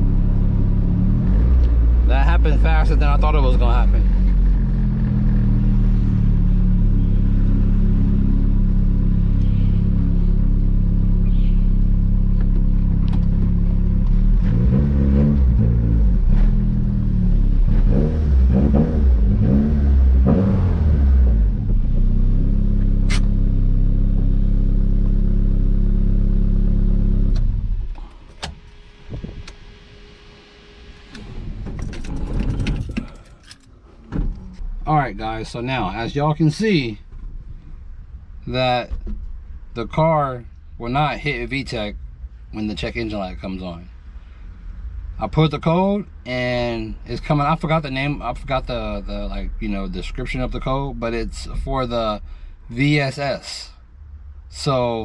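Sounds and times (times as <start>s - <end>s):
car engine revving: 0.0s - 36.9s.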